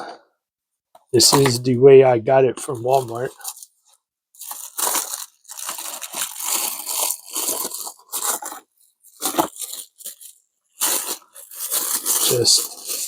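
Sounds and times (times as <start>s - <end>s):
packaging rustling and scraping: 2.8s - 13.0s.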